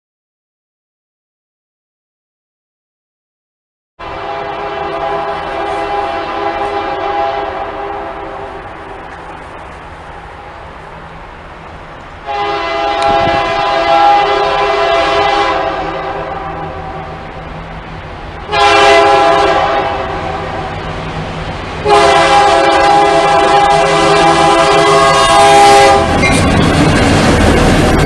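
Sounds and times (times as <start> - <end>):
locomotive air horn blasts: 4.0 - 9.0, 12.2 - 17.2, 18.4 - 20.9, 21.8 - 26.5
low hum of locomotive: 4.0 - 28.0.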